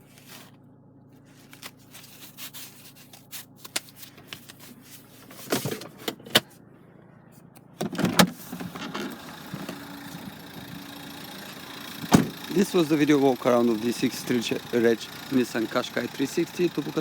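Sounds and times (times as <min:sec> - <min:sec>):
diesel engine idling: 0:06.6 - 0:17.0.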